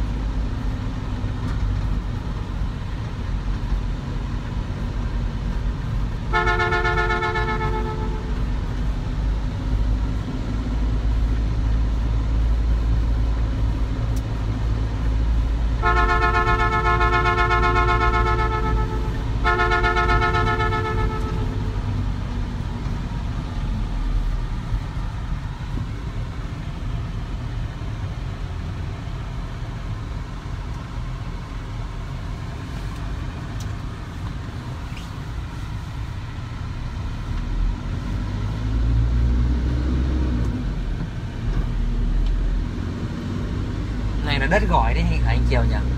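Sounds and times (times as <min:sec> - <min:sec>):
vehicle engine rumble: 0:00.0 - 0:45.9
vehicle horn blasts: 0:06.3 - 0:08.4, 0:15.8 - 0:21.8.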